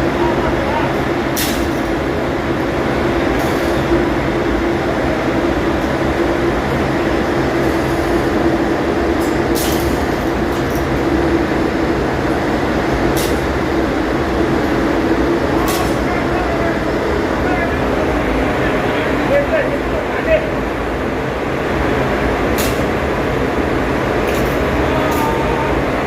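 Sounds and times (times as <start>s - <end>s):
engine room machinery drone: 0.0s - 26.0s.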